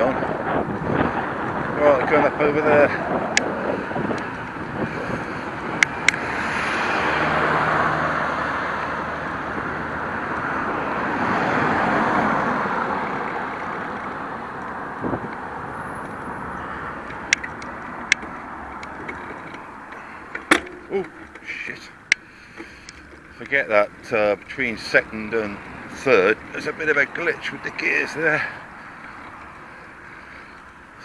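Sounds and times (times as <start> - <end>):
wind noise: 0.0 - 21.4
vehicles passing: 0.0 - 31.0
sharp clicks: 5.8 - 6.4, 17.0 - 23.6.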